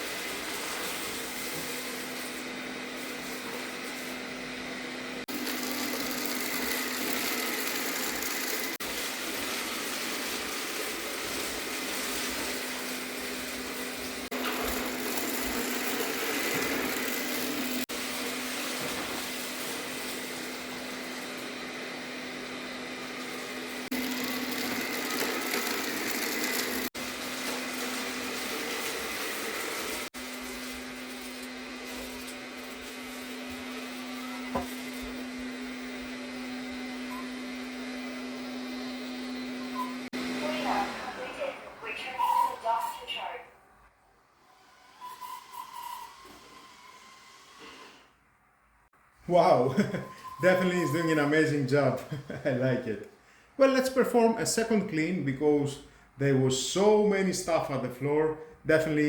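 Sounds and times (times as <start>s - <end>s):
robot vacuum cleaner whirring: 5.3s - 42.8s.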